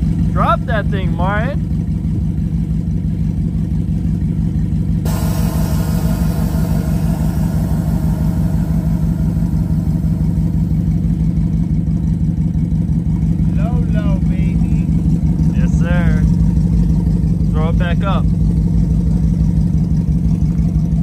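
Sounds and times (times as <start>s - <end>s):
car engine idling: 5.1s - 18.4s.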